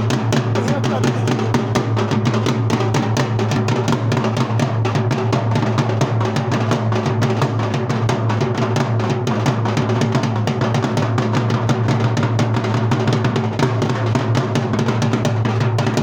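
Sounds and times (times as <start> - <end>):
dhol drumming: 0.0 - 16.0.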